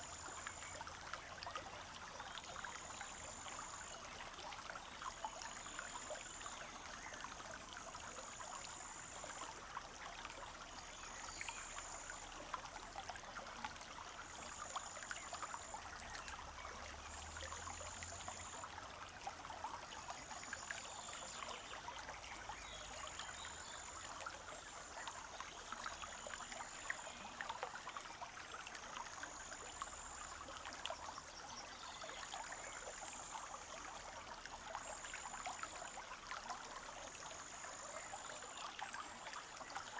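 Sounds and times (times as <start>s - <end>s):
brook trickling and babbling: 0.0s - 39.9s.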